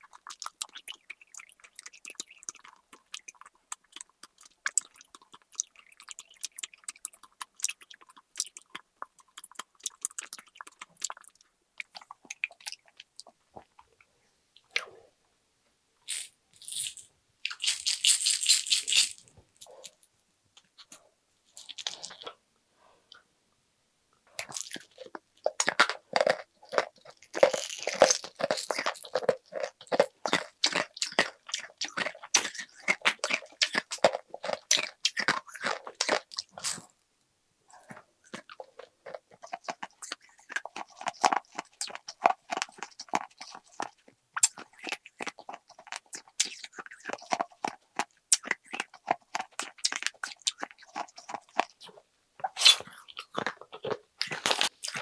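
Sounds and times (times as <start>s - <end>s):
chewing sweets with crisp clicks: 0.0s - 14.9s, 24.3s - 37.0s, 37.8s - 55.0s.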